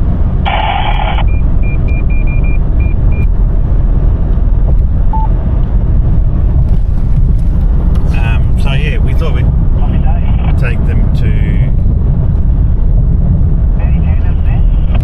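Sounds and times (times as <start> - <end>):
road and engine rumble in cabin: 0.0 - 15.0
low beep: 1.0 - 3.3, 5.1 - 5.4
short high beeps: 5.1 - 5.3.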